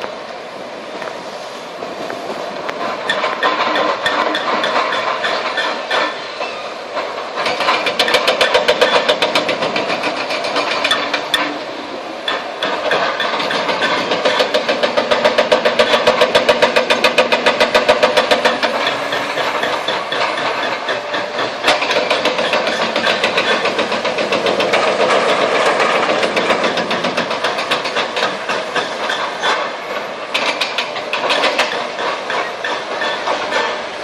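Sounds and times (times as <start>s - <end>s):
diesel engine running: 6.2s - 32.3s
hydraulic breaker hammering concrete: 7.4s - 11.6s, 12.3s - 29.6s.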